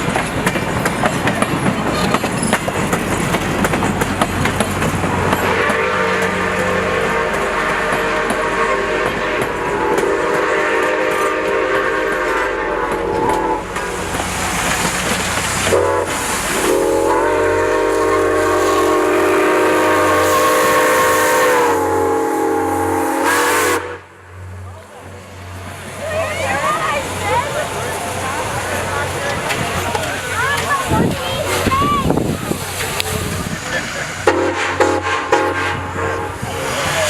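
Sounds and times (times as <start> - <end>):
train rumbling on rails: 0.0 - 37.0
steam locomotive chime whistle: 5.4 - 13.7, 15.7 - 24.1, 34.3 - 36.4.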